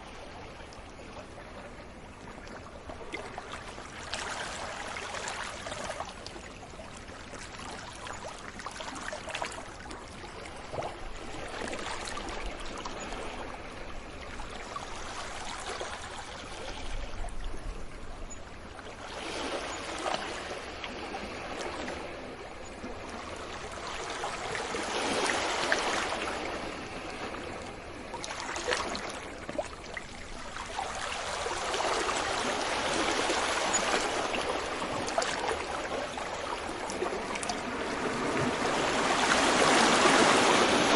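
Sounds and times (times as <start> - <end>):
sea waves breaking on beach: 3.2 - 6.3, 18.9 - 40.9.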